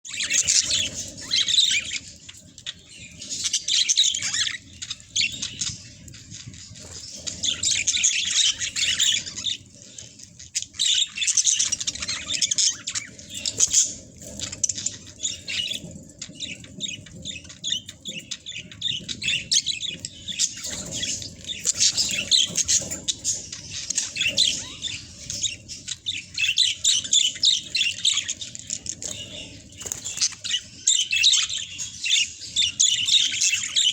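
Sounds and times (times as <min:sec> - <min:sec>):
budgerigars chirping: 0:00.1 - 0:33.9.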